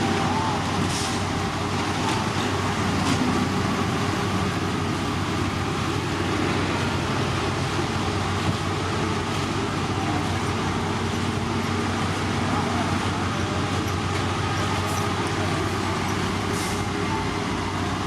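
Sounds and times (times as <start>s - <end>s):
construction machinery diesel drone: 0.0s - 18.0s.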